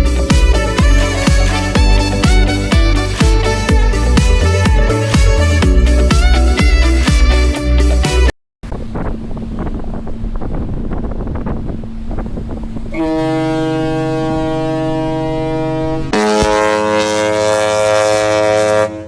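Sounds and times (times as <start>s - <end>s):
ship's horn blast: 0.0s - 19.0s
low rumble: 8.6s - 17.0s
wind buffeting microphone: 8.6s - 18.4s.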